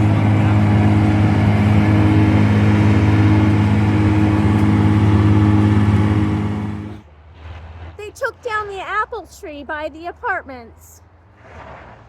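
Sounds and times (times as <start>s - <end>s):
rushing noise: 0.0s - 7.0s
vehicle engine humming: 0.0s - 11.9s.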